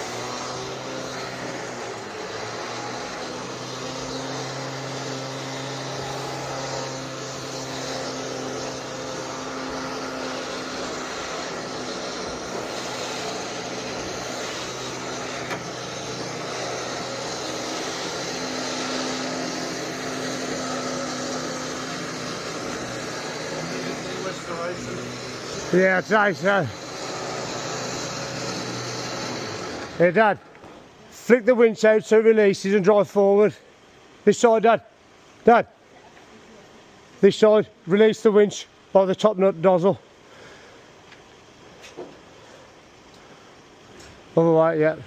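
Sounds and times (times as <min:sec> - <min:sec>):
truck engine droning: 0:00.0 - 0:33.2.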